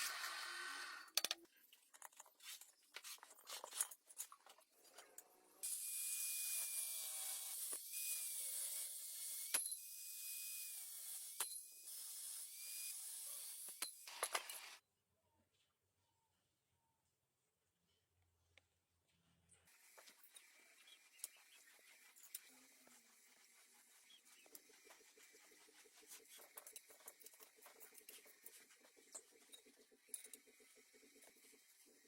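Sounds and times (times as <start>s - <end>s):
clicks and scrapes: 1.1s - 5.3s.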